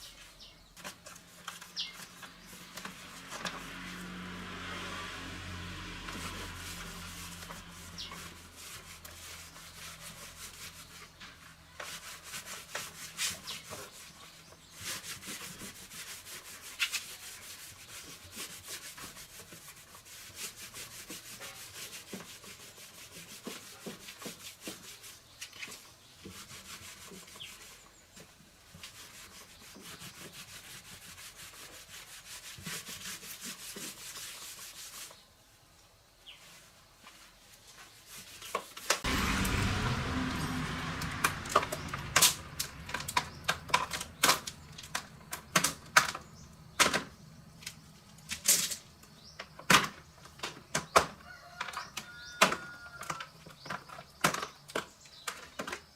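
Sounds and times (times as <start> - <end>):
abrasive scrubbing by hand: 0.9 - 11.2, 11.8 - 27.8, 28.7 - 35.2.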